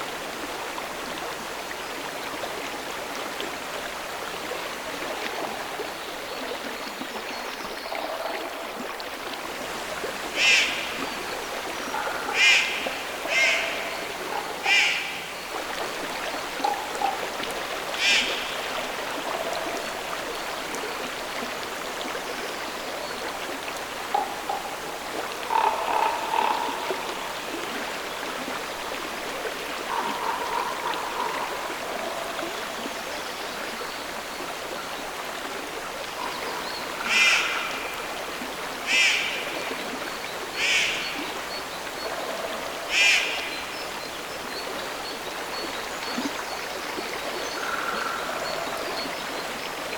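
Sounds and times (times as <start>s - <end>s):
flowing stream water: 0.0s - 49.9s
frogs croaking: 9.6s - 49.9s
loud frog call: 37.0s - 37.9s.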